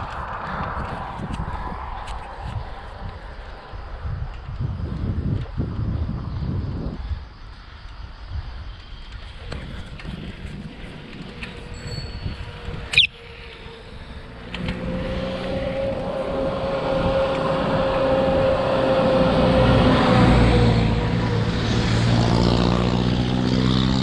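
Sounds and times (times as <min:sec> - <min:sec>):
road rumble: 0:00.0 - 0:24.0
wind on microphone: 0:00.0 - 0:24.0
vehicle engine hum: 0:08.6 - 0:24.0.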